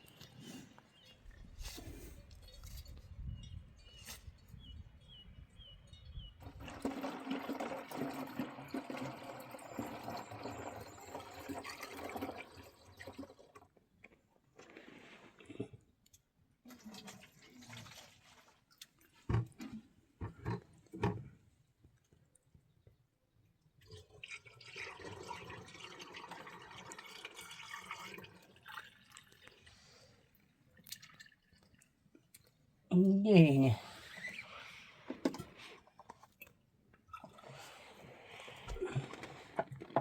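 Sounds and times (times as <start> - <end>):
water dripping: 30.7 - 32.6.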